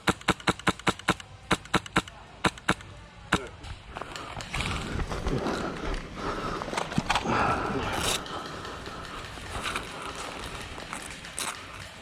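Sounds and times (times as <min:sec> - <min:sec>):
gear rustling and scraping: 0:04.0 - 0:12.0.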